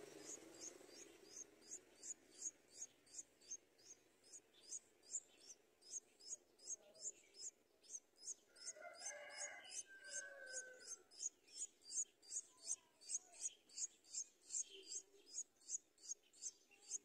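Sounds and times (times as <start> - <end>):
high-pitched bird chirps: 9.7 - 17.0.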